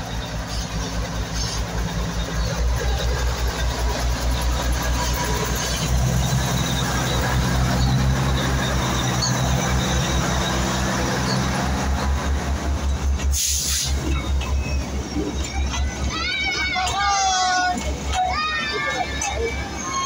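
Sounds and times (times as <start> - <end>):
coaches rolling by: 0.0 - 20.0
diesel locomotive engine hum: 0.0 - 20.0
short burst of hiss: 13.3 - 14.0.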